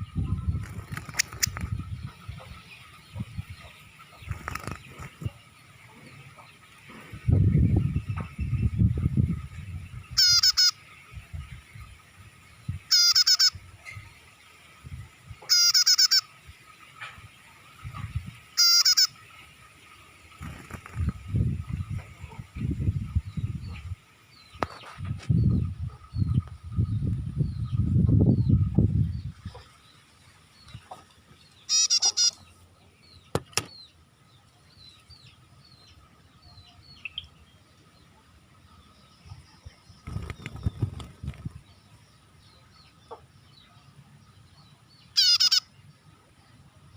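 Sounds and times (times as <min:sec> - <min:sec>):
bird chirping rapidly: 0:07.4 - 0:11.4, 0:12.6 - 0:14.0, 0:15.5 - 0:16.3, 0:18.5 - 0:19.2, 0:31.5 - 0:34.0, 0:36.5 - 0:37.4, 0:39.9 - 0:41.9, 0:45.0 - 0:45.9
loud sharp bird chirps: 0:10.1 - 0:10.9, 0:12.9 - 0:13.6, 0:15.5 - 0:16.3, 0:18.6 - 0:19.2, 0:31.6 - 0:32.4, 0:45.1 - 0:45.8
faint bird chirps: 0:38.8 - 0:46.7.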